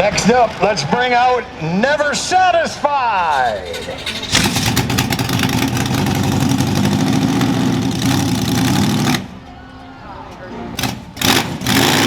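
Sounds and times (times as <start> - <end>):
monster truck engine running rough: 3.2 - 9.5, 10.8 - 12.0.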